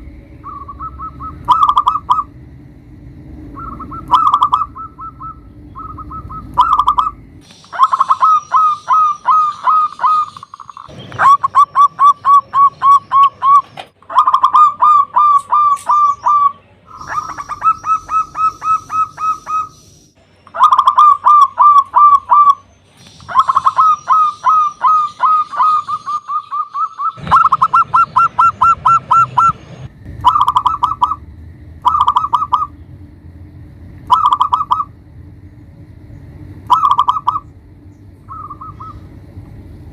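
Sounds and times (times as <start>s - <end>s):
dove cooing: 0.4s - 2.3s, 3.5s - 19.8s, 20.5s - 22.6s, 23.2s - 31.2s, 31.8s - 32.8s, 34.1s - 34.9s, 36.7s - 37.5s, 38.3s - 39.1s.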